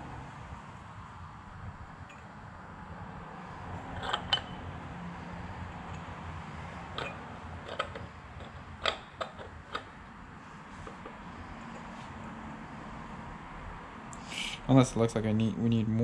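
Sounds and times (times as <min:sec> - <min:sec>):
metal tubing clinking: 0:03.8 - 0:04.6, 0:06.8 - 0:10.0.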